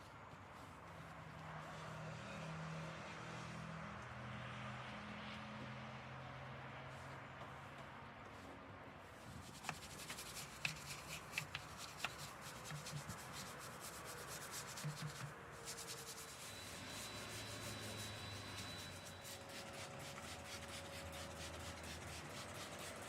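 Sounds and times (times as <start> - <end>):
faint scrubbing and rubbing: 0.2 - 2.5, 9.1 - 23.0
scattered clicks and light knocks: 9.4 - 13.0.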